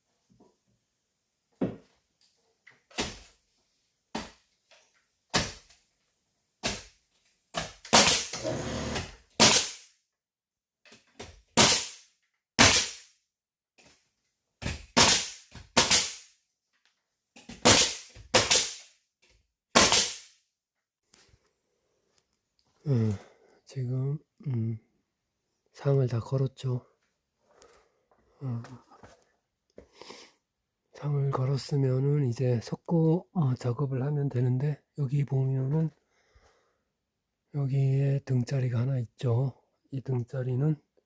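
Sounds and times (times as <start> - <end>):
nail gun shots into timber: 5.3 - 5.8, 6.6 - 7.0, 7.6 - 9.9, 11.6 - 13.1, 14.6 - 16.3, 17.5 - 18.9, 19.7 - 20.3.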